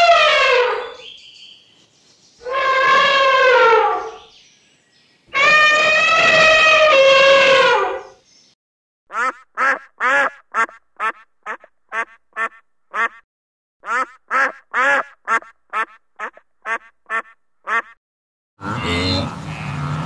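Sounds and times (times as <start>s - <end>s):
ducks quacking: 9.1s - 13.2s, 13.8s - 18.0s.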